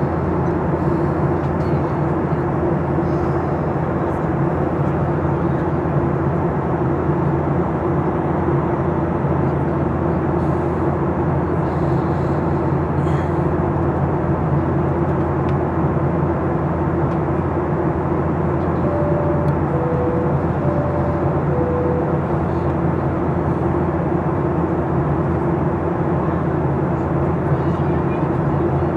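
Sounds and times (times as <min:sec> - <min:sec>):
airplane cabin engine drone: 0:00.0 - 0:28.9
high-low cabin chime: 0:18.8 - 0:22.7.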